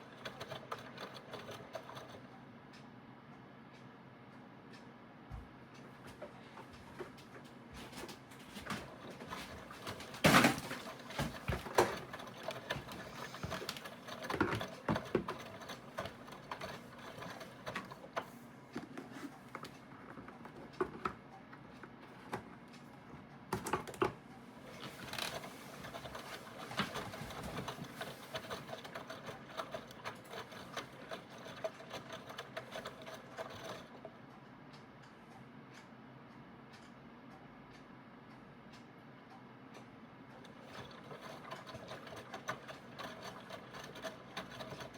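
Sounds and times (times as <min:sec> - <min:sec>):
washing machine agitating: 0:00.0 - 0:02.2, 0:06.1 - 0:21.2, 0:23.5 - 0:34.2, 0:40.3 - 0:44.9.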